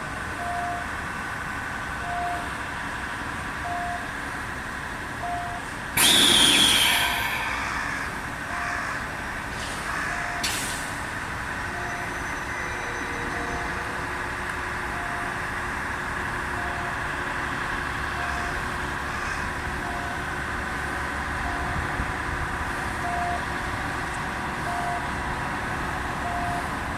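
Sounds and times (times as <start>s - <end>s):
diesel locomotive running: 0.0s - 26.9s
warning beep: 5.2s - 7.7s, 11.7s - 13.8s, 26.2s - 26.6s
air hiss: 6.0s - 8.2s.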